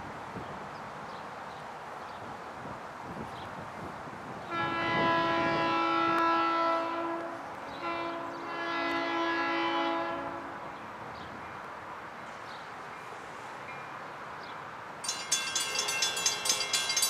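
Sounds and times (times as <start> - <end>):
train horn blasts: 4.5 - 10.8.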